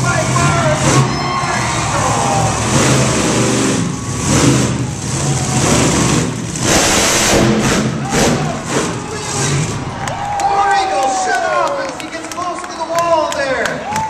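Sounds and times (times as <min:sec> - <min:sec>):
monster truck engine revving: 0:00.0 - 0:10.4.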